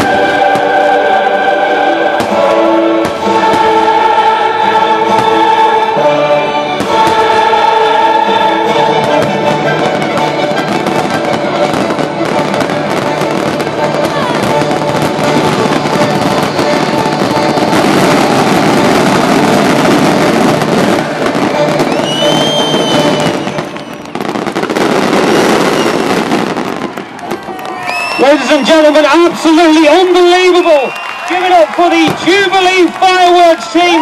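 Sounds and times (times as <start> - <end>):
orchestral music: 0.0 - 27.6
fireworks crackling and banging: 0.0 - 34.0
firework whistle: 6.8 - 29.1, 30.4 - 31.5.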